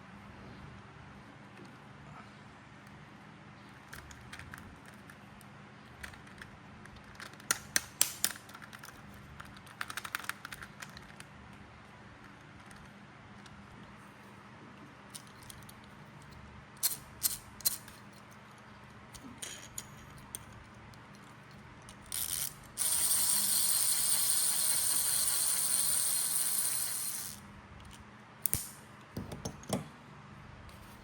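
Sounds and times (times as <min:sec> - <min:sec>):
plastic toy parts clicking: 0:06.0 - 0:11.3, 0:15.1 - 0:18.1, 0:21.9 - 0:28.7.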